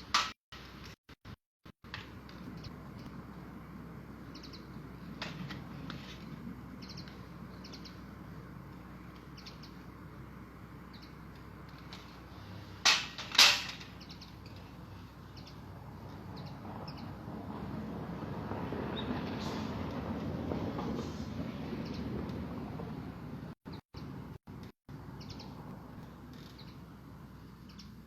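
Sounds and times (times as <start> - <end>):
small birds chirping: 4.2 - 12.7, 13.9 - 17.2, 23.7 - 28.0.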